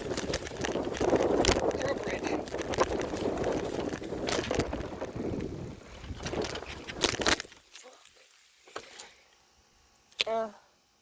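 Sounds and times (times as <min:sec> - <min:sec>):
wind on microphone: 0:00.0 - 0:07.1
bicycle tyres crunching gravel: 0:00.0 - 0:09.2
bike rattling: 0:00.0 - 0:09.2.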